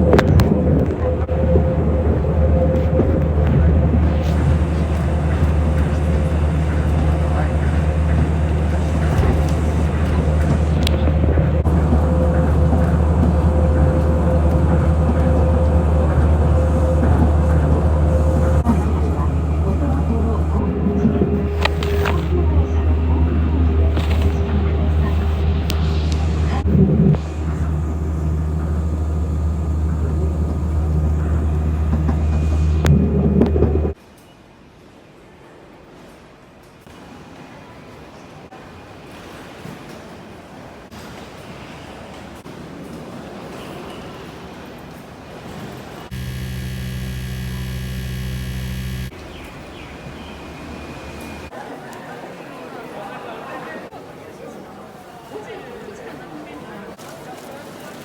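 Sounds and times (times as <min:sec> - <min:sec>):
mid-pitched hum: 0:00.0 - 0:34.0, 0:46.1 - 0:49.3
vehicle interior rumble: 0:00.0 - 0:34.0
clicks: 0:21.4 - 0:22.4, 0:46.1 - 0:49.1.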